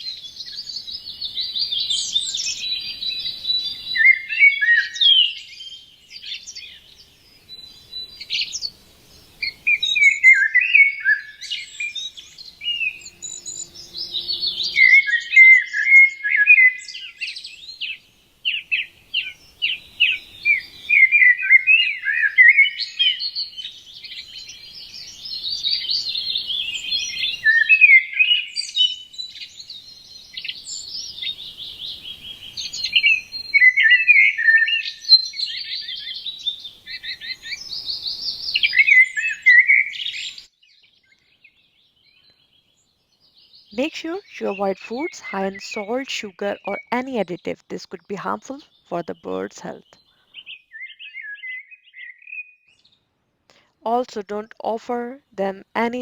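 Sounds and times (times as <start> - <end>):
songbirds chirping: 0.3 - 15.9, 34.7 - 56.0.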